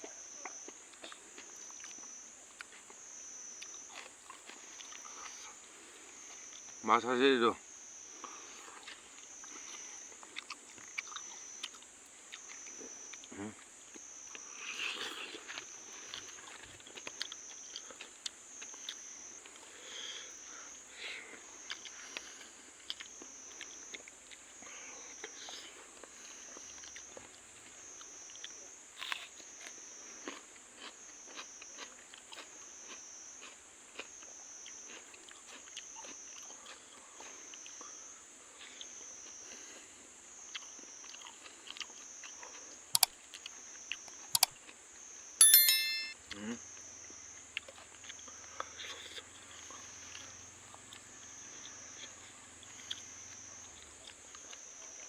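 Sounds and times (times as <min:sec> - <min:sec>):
chewing and crunching food: 0:00.0 - 0:06.8, 0:08.1 - 0:44.9, 0:47.4 - 0:55.0.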